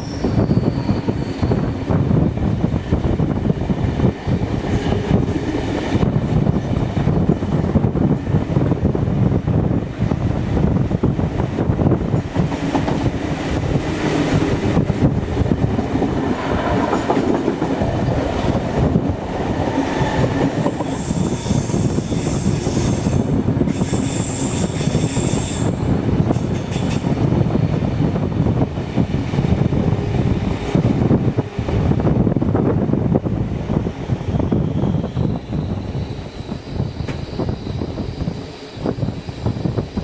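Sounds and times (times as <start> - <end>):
train wheels squealing: 0.0 - 2.0, 19.6 - 27.1, 34.2 - 40.0
train rumble and rail clatter: 0.0 - 40.0.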